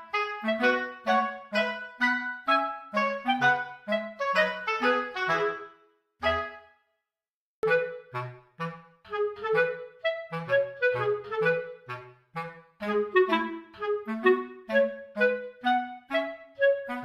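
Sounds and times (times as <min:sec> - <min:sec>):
light bouncy background music: 0:07.6 - 0:17.0.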